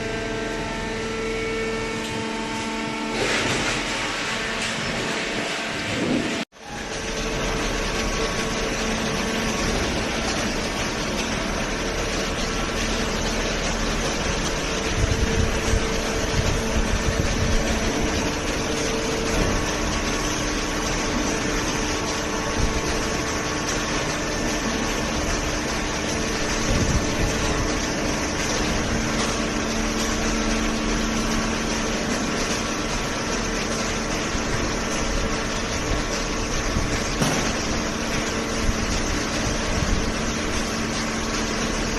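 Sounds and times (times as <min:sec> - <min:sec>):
baler machine humming: 0:00.0 - 0:41.9
machine knocks: 0:37.0 - 0:38.7.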